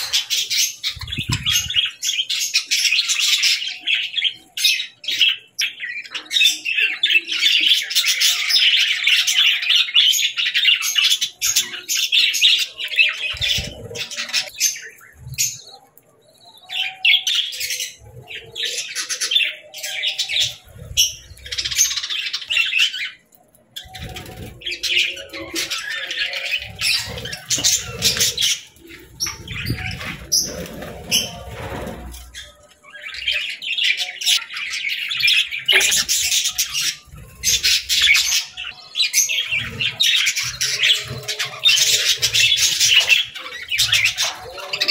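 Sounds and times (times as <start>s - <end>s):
budgerigars chattering and chirping: 0.0s - 15.8s, 23.8s - 44.9s.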